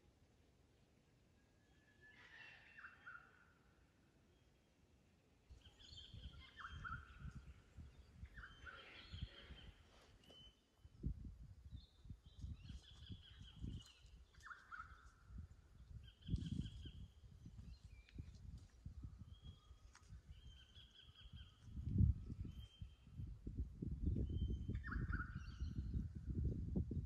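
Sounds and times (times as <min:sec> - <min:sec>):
faint bird calls: 0:01.6 - 0:03.7, 0:05.5 - 0:10.6
low rumbling microphone noise: 0:21.2 - 0:27.0.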